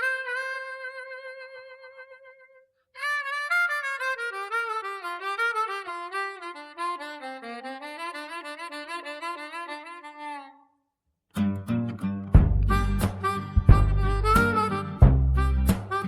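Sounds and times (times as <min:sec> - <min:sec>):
solo instrumental lead melody: 0:11.4 - 0:16.0.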